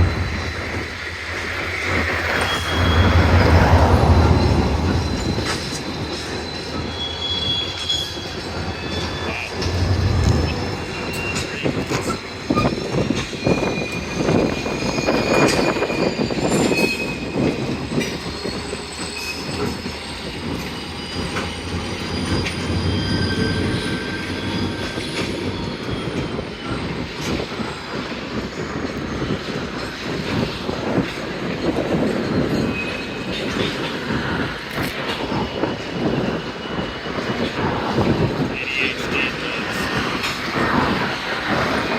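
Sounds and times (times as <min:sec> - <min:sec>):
freight cars rumbling: 0:00.0 - 0:13.3
steel wheels squealing: 0:00.0 - 0:41.9.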